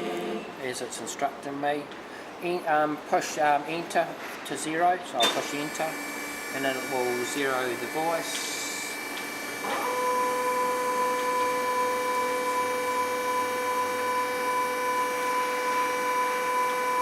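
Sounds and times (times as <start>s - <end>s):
machine background hum: 0.0s - 17.0s
hydraulic drive whine: 5.2s - 17.0s.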